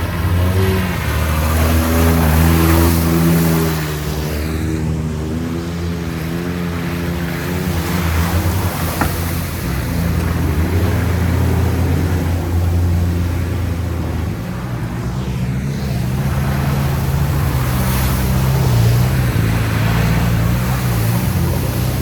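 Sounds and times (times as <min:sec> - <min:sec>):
vehicle engine running loud: 0:00.0 - 0:22.0.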